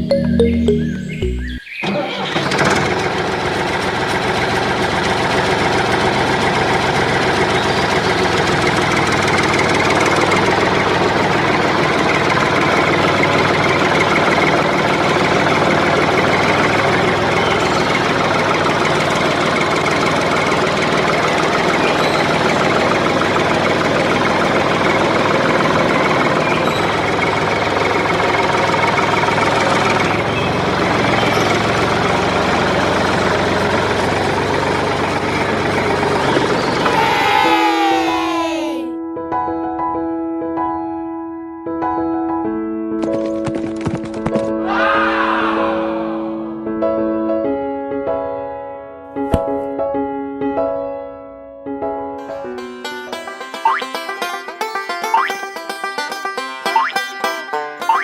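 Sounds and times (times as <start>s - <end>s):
engine running with fast knocking: 1.9s - 37.0s, 43.0s - 44.5s.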